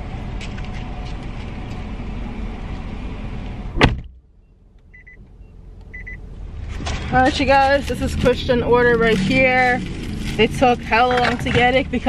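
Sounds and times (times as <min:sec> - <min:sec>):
car door slamming: 0:03.7 - 0:04.2
short electronic beep: 0:04.9 - 0:06.2.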